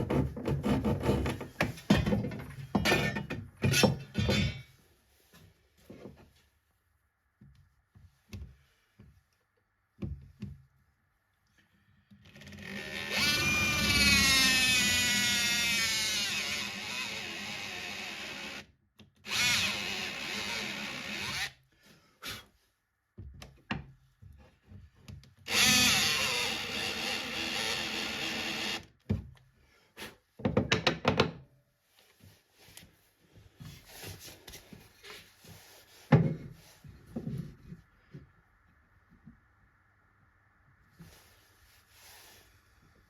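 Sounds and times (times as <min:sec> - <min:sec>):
power drill running: 0:12.6 - 0:21.6, 0:25.5 - 0:28.9.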